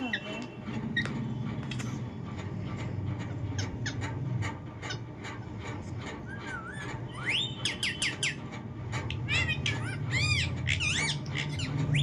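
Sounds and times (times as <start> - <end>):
bird whistling calls: 6.3 - 8.4.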